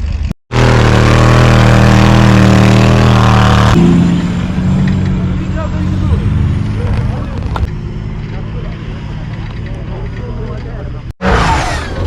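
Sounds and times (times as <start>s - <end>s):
vehicle engine running loud: 0.0s - 12.0s.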